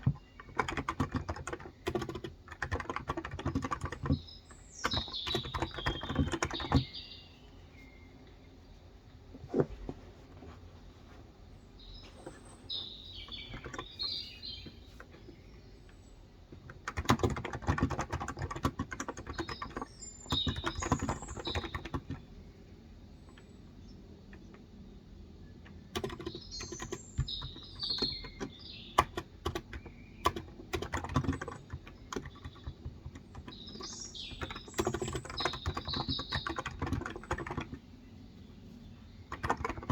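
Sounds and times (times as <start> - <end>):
typing on keyboard: 0.0 - 7.0, 13.2 - 14.8, 15.9 - 22.3, 25.6 - 37.8, 39.3 - 39.9
birds chirping: 0.0 - 39.9.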